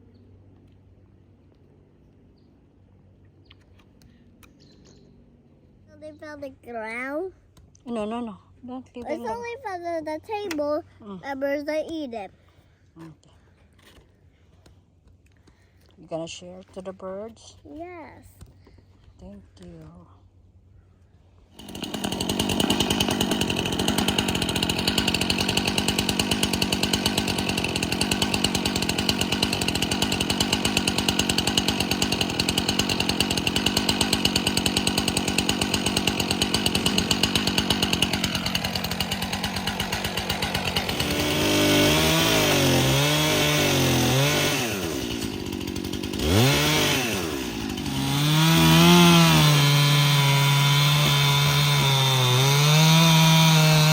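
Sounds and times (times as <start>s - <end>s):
chainsaw cutting wood: 21.5s - 53.9s.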